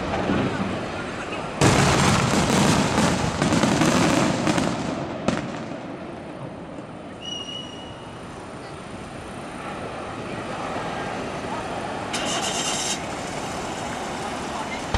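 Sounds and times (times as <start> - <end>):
fireworks crackling: 0.0 - 7.0, 12.1 - 14.9
firework bang: 1.6 - 6.0.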